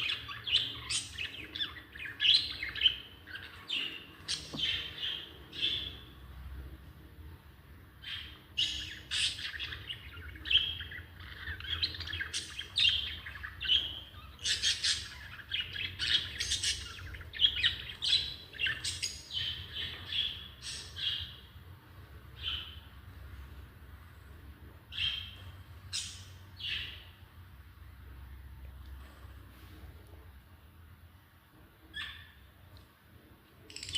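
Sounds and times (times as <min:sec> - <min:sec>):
lovebirds chirping and squawking: 0:00.0 - 0:06.8, 0:07.8 - 0:28.1, 0:31.7 - 0:32.7, 0:33.6 - 0:33.9.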